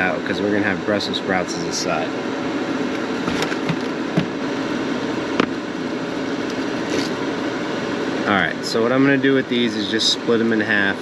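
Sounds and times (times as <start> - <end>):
fan whirring: 0.0 - 11.0.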